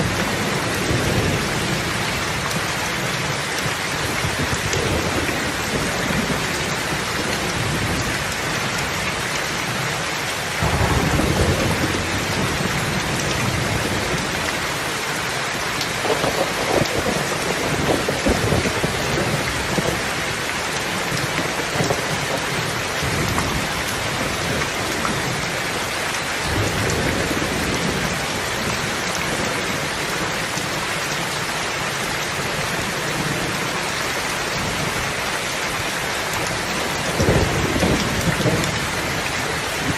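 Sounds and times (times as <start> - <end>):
heavy rain falling: 0.0 - 39.9
thunder rumbling: 10.6 - 14.6, 15.8 - 30.8, 35.8 - 39.9.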